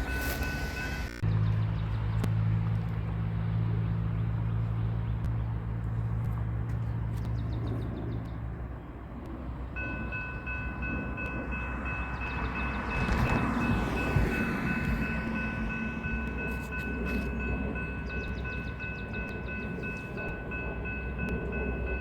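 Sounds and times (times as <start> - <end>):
crossing warning bell ringing: 0.0 - 1.2, 9.7 - 22.0
locomotive engine humming: 0.0 - 22.0.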